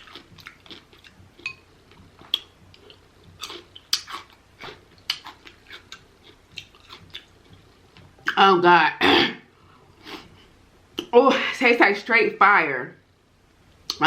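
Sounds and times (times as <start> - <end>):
chewing and wet mouth smacks: 0.0 - 7.7.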